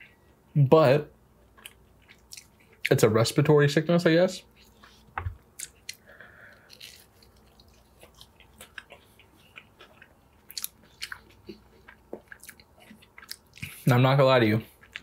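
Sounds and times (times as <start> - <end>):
close chewing with crunches: 1.5 - 3.0, 4.5 - 14.0, 14.6 - 15.0.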